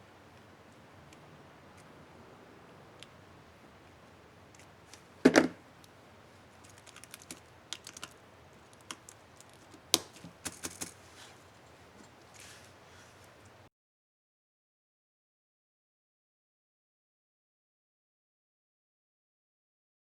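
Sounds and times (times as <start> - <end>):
laptop keyboard keys clicking: 6.6 - 11.0.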